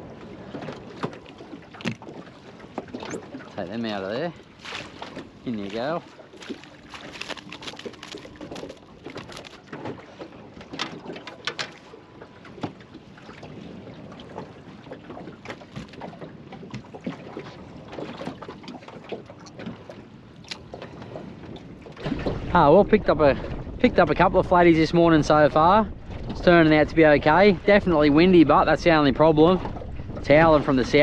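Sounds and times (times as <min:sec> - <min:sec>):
water lapping against boat hull: 0:00.0 - 0:31.0
small splashes and knocks: 0:00.5 - 0:22.5.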